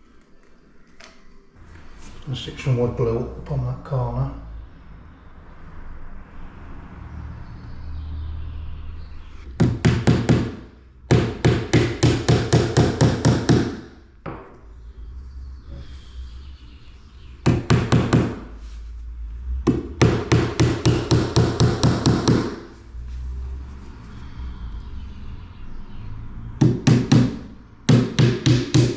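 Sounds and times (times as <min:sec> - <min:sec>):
hammer tapping nails into wood: 0:09.6 - 0:14.5, 0:26.6 - 0:28.9.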